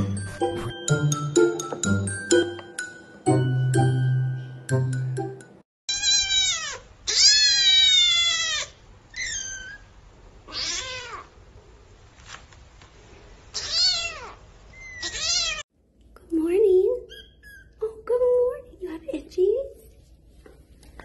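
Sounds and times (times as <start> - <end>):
kittens meowing: 5.9 - 9.9, 10.5 - 11.3, 13.5 - 15.6.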